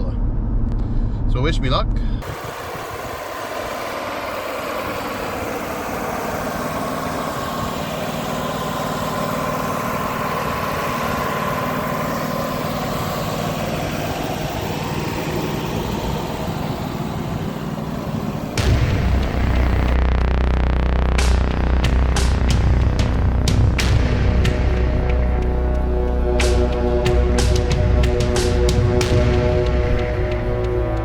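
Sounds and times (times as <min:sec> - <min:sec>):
faint high whine: 0:02.2 - 0:20.0
engine running steadily: 0:02.2 - 0:31.0.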